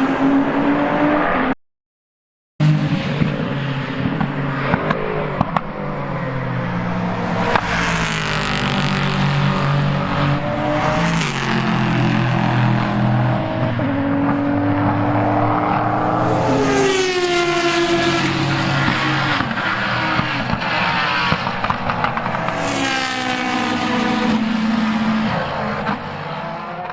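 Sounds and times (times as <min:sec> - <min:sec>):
racing car engines: 0:00.0 - 0:01.6, 0:02.6 - 0:26.9
racing cars passing by: 0:02.6 - 0:26.9.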